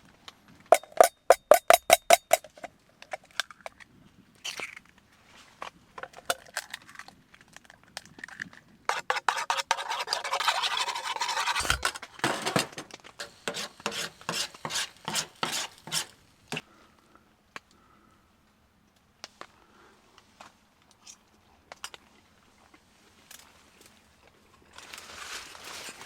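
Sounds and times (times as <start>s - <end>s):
utensils clinking on cookware: 0.7s - 2.4s, 11.4s - 16.1s
quick evenly spaced taps: 0.8s - 2.4s.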